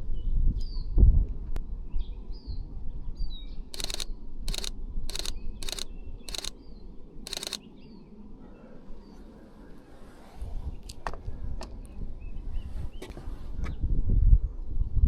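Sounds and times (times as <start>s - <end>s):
wind rumble on microphone: 0.0s - 3.6s, 10.2s - 15.0s
small birds chirping: 3.7s - 8.1s
rapid camera shutter clicks: 3.8s - 6.6s, 7.3s - 7.6s.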